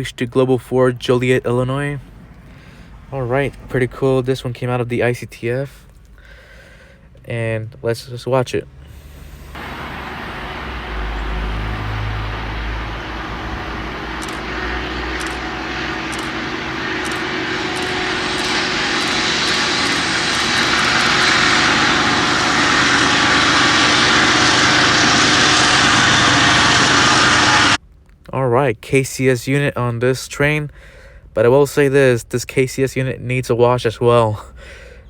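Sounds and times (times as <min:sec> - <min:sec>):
diesel locomotive engine drone: 0:00.0 - 0:05.2, 0:08.7 - 0:27.9
rail noise: 0:02.0 - 0:04.6, 0:08.7 - 0:27.8.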